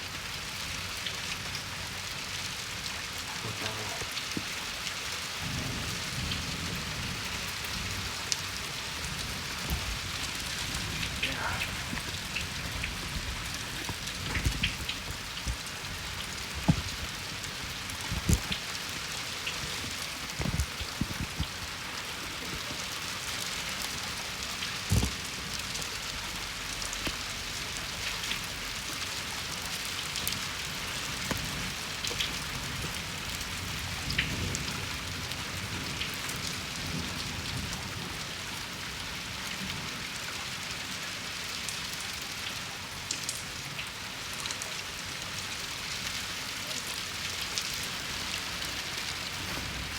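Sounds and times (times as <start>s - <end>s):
heavy rain falling: 0.0s - 49.9s
sharp close drips: 8.3s - 33.4s.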